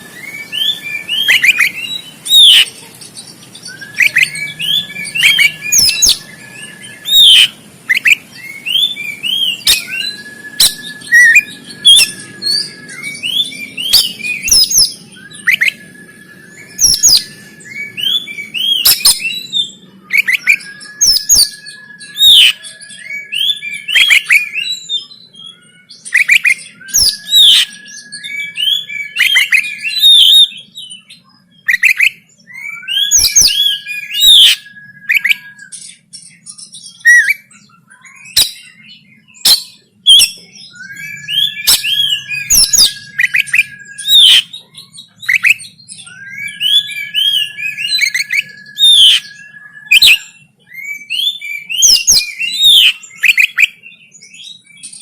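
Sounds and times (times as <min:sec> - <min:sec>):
bird singing: 0:00.0 - 0:55.0
long steady whistle: 0:08.9 - 0:19.2.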